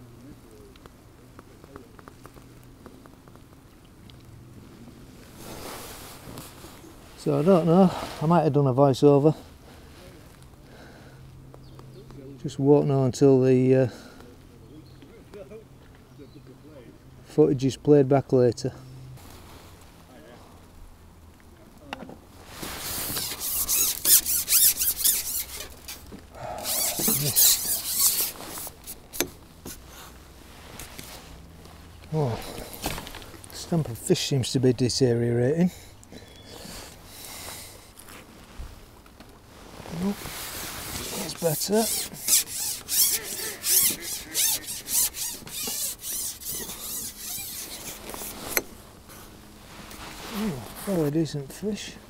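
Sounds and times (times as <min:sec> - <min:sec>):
rubbing against a microphone: 0:22.4 - 0:33.0, 0:39.5 - 0:51.2
short squeak: 0:23.0 - 0:26.0, 0:26.6 - 0:29.3, 0:41.9 - 0:48.7.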